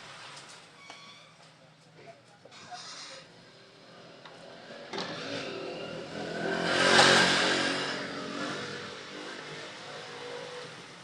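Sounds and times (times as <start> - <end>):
passing vehicle engine: 3.2 - 11.0.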